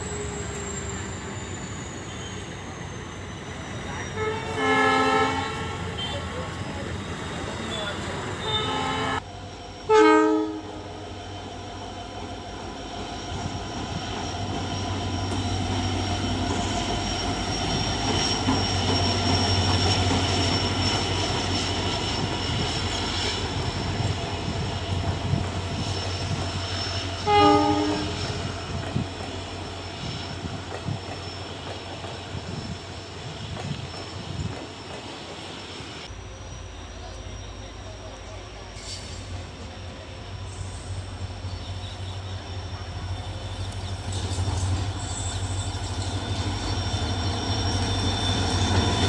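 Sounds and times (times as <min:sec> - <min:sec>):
locomotive horn blast: 0:04.0 - 0:06.4, 0:08.3 - 0:09.2, 0:09.9 - 0:10.8, 0:27.2 - 0:28.4.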